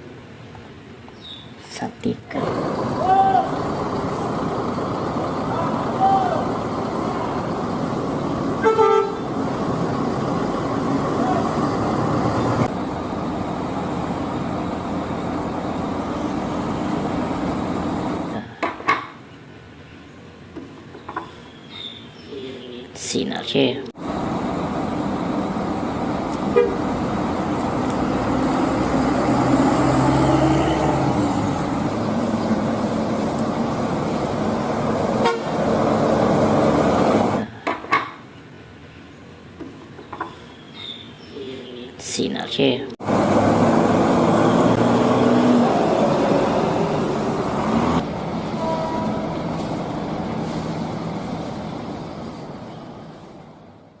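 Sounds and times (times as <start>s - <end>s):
road traffic noise: 0.0s - 54.0s
heavy vehicle rumbling: 2.3s - 18.8s, 23.9s - 37.8s, 42.9s - 54.0s
vehicle horn: 8.6s - 9.3s, 26.5s - 26.9s, 35.2s - 35.6s, 48.6s - 49.3s.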